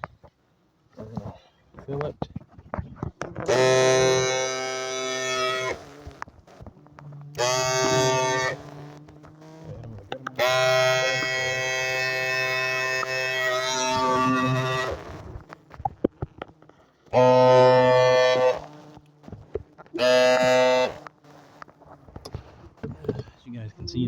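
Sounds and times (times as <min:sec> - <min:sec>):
powered duster buzzing: 0:03.4 - 0:23.2
small clicks and taps: 0:08.7 - 0:10.4, 0:15.0 - 0:17.2, 0:18.6 - 0:20.0, 0:20.9 - 0:23.4.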